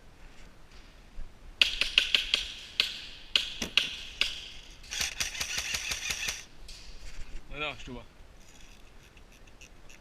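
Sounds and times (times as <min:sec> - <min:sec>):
airsoft guns firing sharp clacks: 0:01.6 - 0:06.5.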